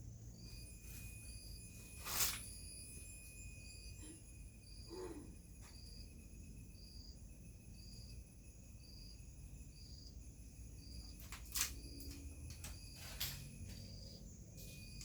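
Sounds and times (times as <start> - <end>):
cricket-like chirp: 0.0 - 15.0
steady high ring: 0.1 - 11.0.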